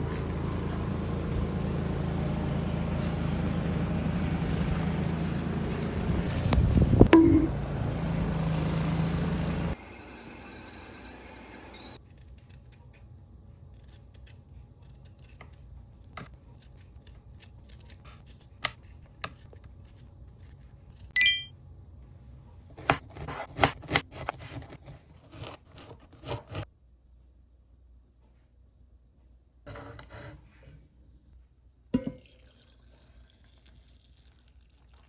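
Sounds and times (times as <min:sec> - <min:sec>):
short high-pitched tone: 0:07.1 - 0:07.6, 0:21.2 - 0:21.5.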